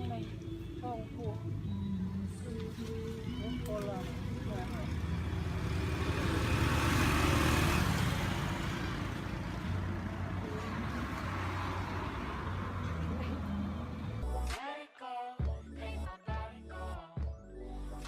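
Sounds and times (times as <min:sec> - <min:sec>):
vehicle engine running: 0:00.0 - 0:14.4
road noise: 0:00.0 - 0:14.6.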